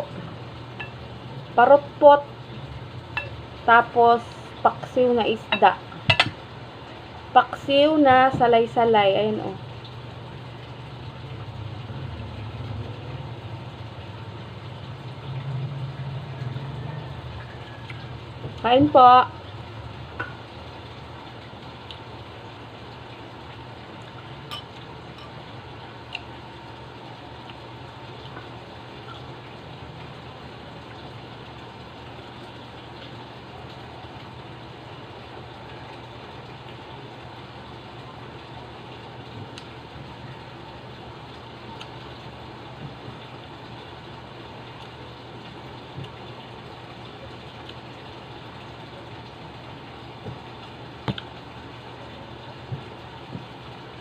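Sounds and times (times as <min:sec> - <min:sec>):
low background hum: 0:00.0 - 0:54.0
tableware clicks and taps: 0:05.5 - 0:06.4.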